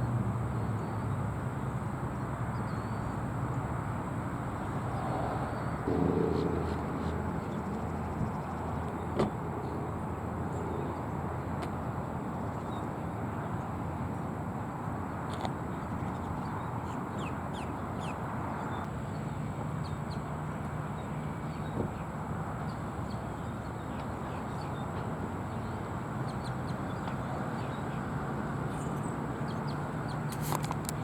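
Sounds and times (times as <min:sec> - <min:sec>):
steady low rumble: 0:04.5 - 0:10.6.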